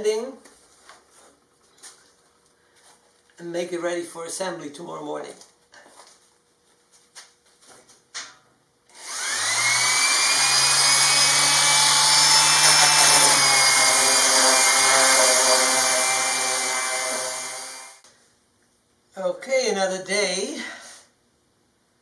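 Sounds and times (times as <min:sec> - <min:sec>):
orbital sander motor whine: 0:09.0 - 0:18.0
sanding plywood: 0:10.0 - 0:17.9.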